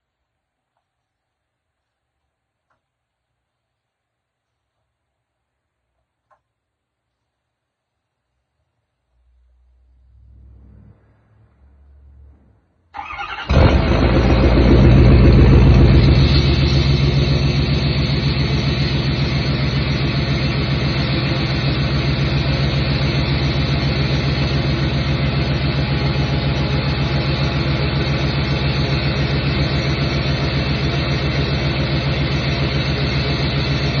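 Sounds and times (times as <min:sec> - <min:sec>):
diesel engine starting and idling: 0:09.7 - 0:34.0.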